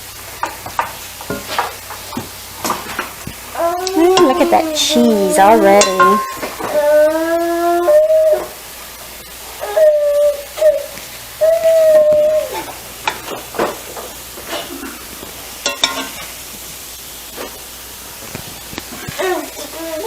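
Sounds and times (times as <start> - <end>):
spoon scraping a skillet: 0.2 - 6.8, 12.5 - 16.6
dog whining: 3.6 - 5.8, 6.5 - 8.6, 9.5 - 12.8, 19.1 - 20.0.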